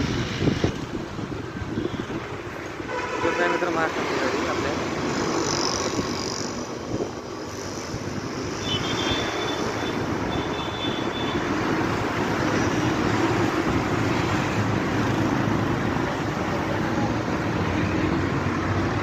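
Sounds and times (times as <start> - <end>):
road noise: 0.0 - 19.0.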